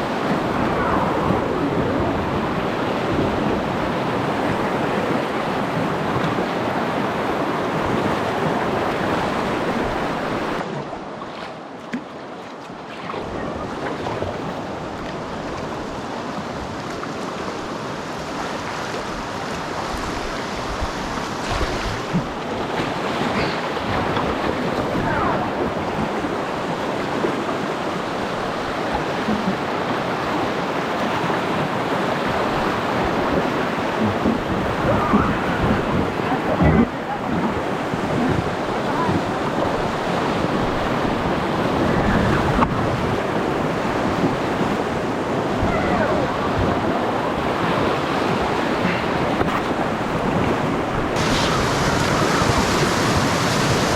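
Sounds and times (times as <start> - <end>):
river water flowing: 0.0 - 53.9
knocks and splashes: 18.7 - 24.9, 48.8 - 53.9.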